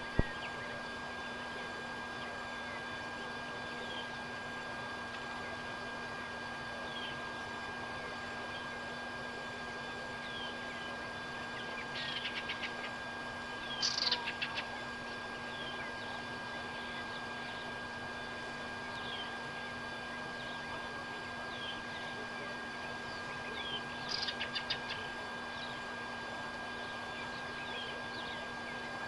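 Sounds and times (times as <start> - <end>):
constant high tone: 5.3 - 29.0
birds chirping: 10.2 - 12.9, 13.6 - 14.8, 22.8 - 25.8.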